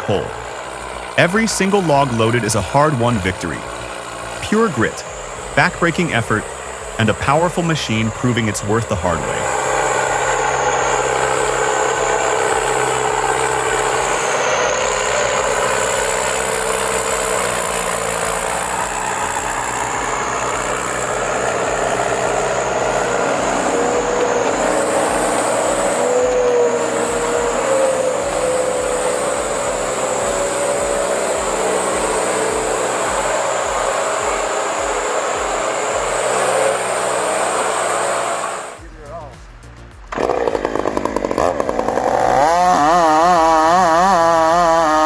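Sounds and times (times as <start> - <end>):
high whine: 0.0 - 45.0
truck engine running under load: 0.0 - 45.0.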